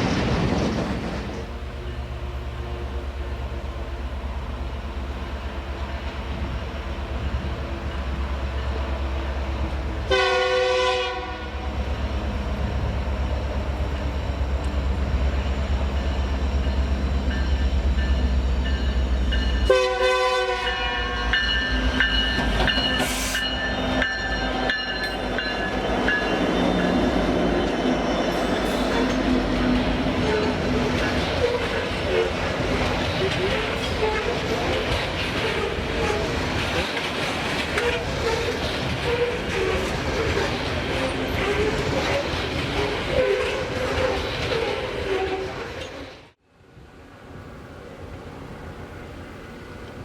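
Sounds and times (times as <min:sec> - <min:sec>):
train air horn blasts: 0:10.0 - 0:11.8, 0:19.7 - 0:21.3, 0:23.0 - 0:23.6
wagons clicking over rail joints: 0:27.6 - 0:46.0.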